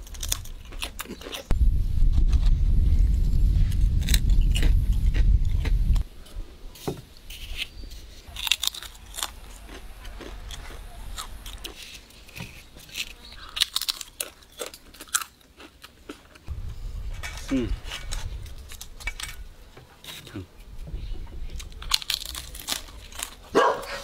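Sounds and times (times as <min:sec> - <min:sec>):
potato chips crunching: 0:00.0 - 0:01.5, 0:08.3 - 0:16.5, 0:21.6 - 0:24.0
loud low rumble: 0:01.5 - 0:06.0, 0:16.5 - 0:19.7.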